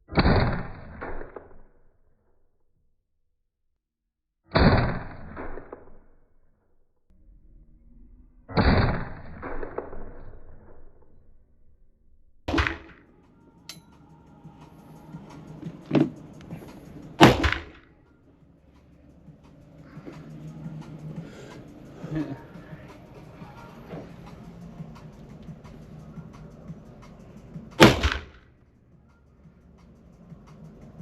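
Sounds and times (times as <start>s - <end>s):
rifle shots with echo: 12.5s - 13.0s, 17.2s - 17.8s, 27.8s - 28.4s
faint gunshot report: 17.2s - 17.8s, 27.8s - 28.4s.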